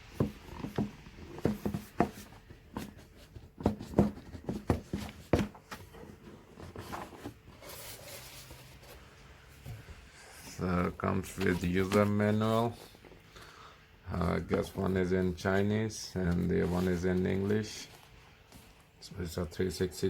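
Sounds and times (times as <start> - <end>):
cardboard box knocks and clicks: 0.0 - 7.4
scratchy sliding rustle: 6.1 - 9.2.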